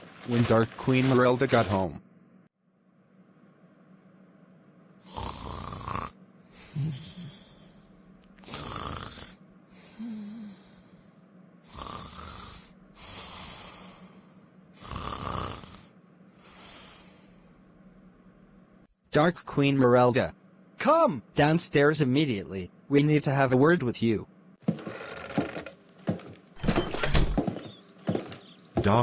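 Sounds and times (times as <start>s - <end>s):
person snoring: 5.0s - 7.8s, 8.4s - 10.9s, 11.7s - 14.1s, 14.8s - 15.9s
soft breaths: 12.5s - 14.6s, 16.2s - 17.8s.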